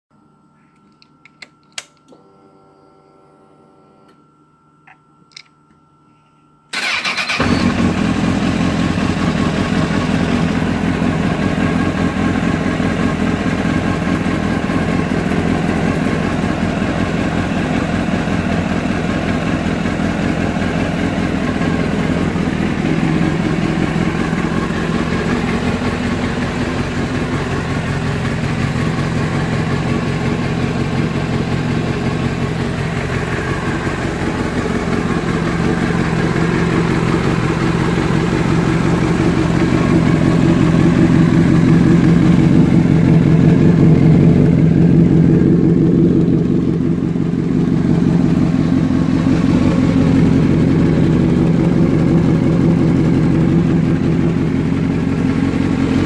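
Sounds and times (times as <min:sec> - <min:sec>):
faint ignition hum: 0:00.6 - 0:56.0
motorcycle engine idling: 0:06.7 - 0:56.0.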